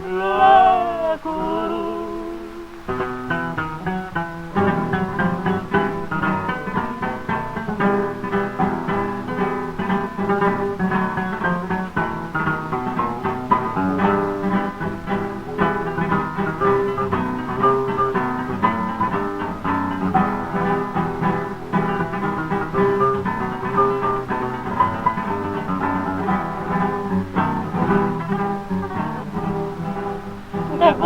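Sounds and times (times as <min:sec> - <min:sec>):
acoustic guitars playing melody: 0:00.0 - 0:31.0.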